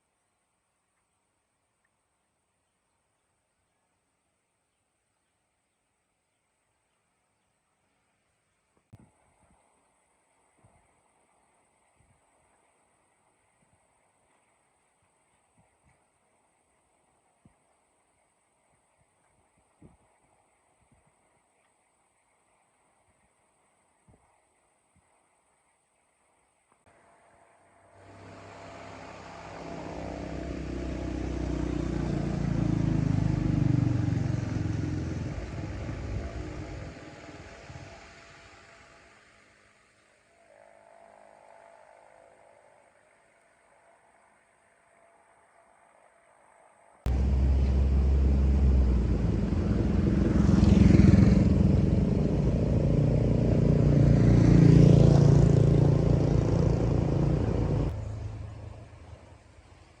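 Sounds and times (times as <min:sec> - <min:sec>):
vehicle driving past: 0:26.9 - 0:39.4, 0:47.1 - 0:59.5
car engine running: 0:27.9 - 0:37.9, 0:47.1 - 0:54.3, 0:55.4 - 0:59.3.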